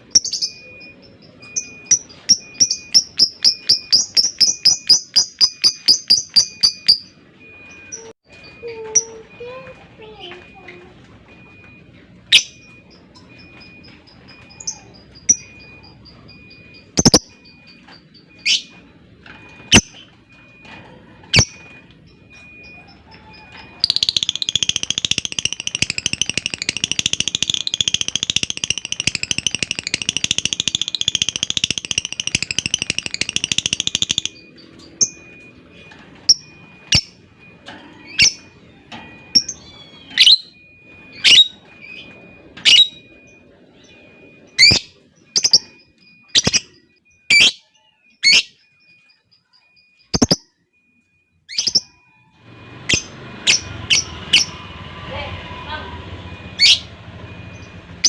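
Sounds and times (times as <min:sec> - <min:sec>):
ticking bird trill: 0:00.0 - 0:50.7
lovebird chirps: 0:14.0 - 0:18.8, 0:21.4 - 0:35.3, 0:44.6 - 0:50.5
lovebird high chattering: 0:17.0 - 0:17.3, 0:23.8 - 0:34.4, 0:50.2 - 0:50.4.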